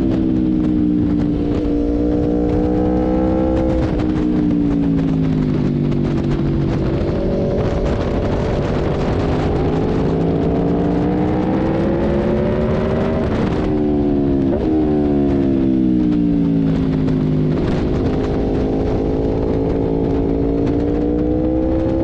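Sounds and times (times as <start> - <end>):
heavy wind noise: 0.0 - 22.0
motorcycle engine revving: 0.0 - 22.0.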